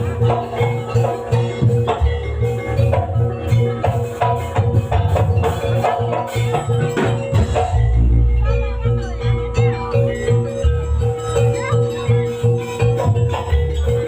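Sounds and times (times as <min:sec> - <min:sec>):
drums and metal percussion: 0:00.0 - 0:14.0
deep low note: 0:07.7 - 0:10.4.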